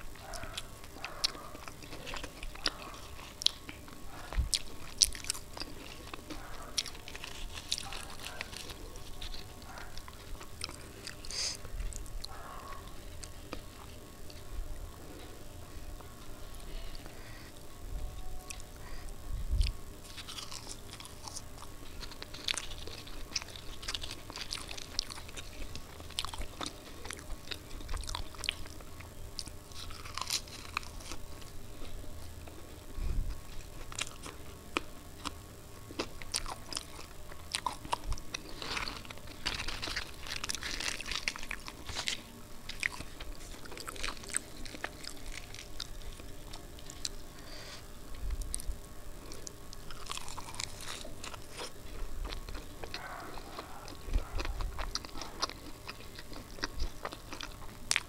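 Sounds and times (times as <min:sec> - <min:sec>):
chewing with crisp mouth clicks: 0:00.2 - 0:14.5, 0:48.2 - 0:58.0.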